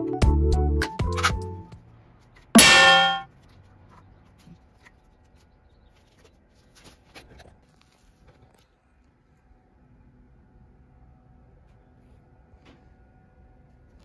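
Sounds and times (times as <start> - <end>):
loud metallic clang: 2.6 - 3.2.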